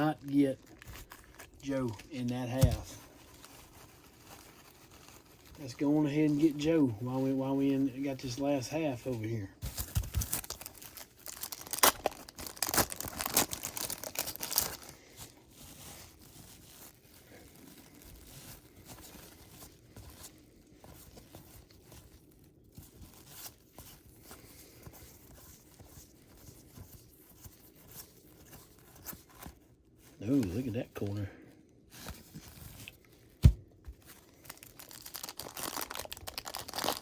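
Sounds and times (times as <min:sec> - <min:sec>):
packaging tearing and crinkling: 0:00.0 - 0:05.8, 0:09.6 - 0:24.2, 0:32.1 - 0:37.0
cards rustling and shuffling: 0:00.0 - 0:31.3.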